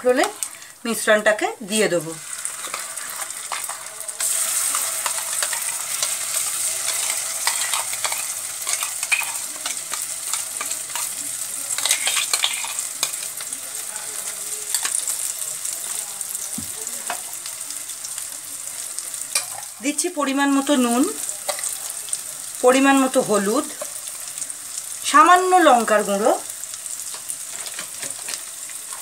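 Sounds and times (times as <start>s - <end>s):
paste sizzling in hot oil: 0.0s - 29.0s
spatula scraping against pan: 2.2s - 13.4s.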